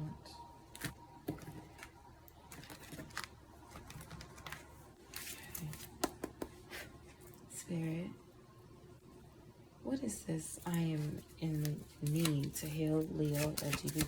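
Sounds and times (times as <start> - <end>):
cards rustling: 0.7 - 6.0, 10.7 - 14.0
cards shuffling clicks: 11.6 - 14.0.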